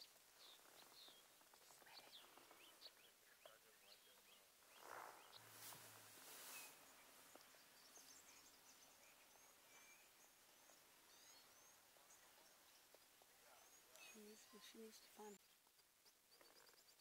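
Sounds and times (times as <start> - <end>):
distant bird chirps: 0.0 - 17.0
soft rustling swishes: 4.8 - 7.5.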